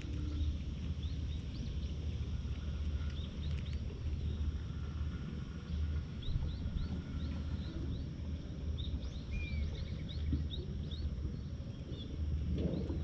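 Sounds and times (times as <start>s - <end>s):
low steady rumble: 0.0s - 13.0s
small birds chirping: 0.0s - 13.0s.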